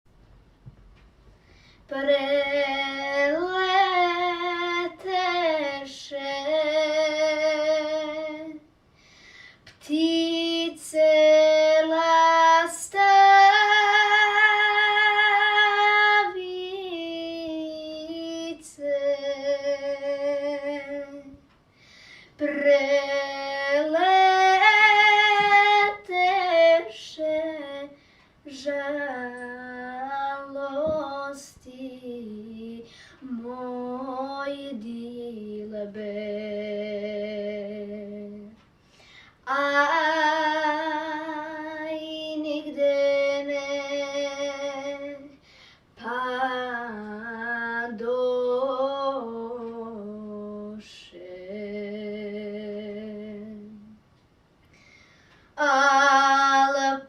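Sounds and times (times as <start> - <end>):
quick breath: 1.4 - 1.9, 8.9 - 9.7, 21.7 - 22.4, 38.8 - 39.4, 45.4 - 45.9, 54.7 - 55.5
woman singing unaccompanied: 1.9 - 8.6, 9.8 - 21.4, 22.4 - 38.6, 39.4 - 45.4, 46.0 - 54.0, 55.6 - 57.0.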